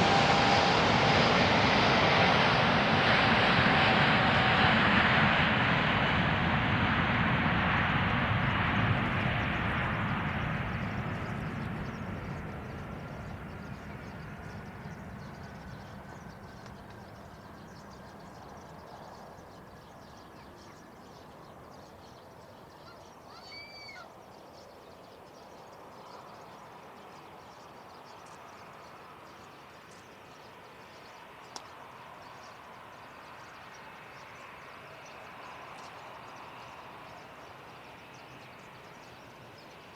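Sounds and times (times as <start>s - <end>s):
jet airliner engine noise: 0.0s - 39.9s
bird chirp: 9.0s - 39.9s.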